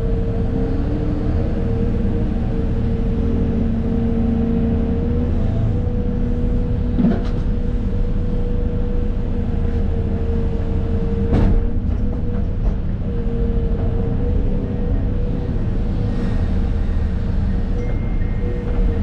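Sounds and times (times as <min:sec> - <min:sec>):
excavator diesel engine rumbling: 0:00.0 - 0:19.0.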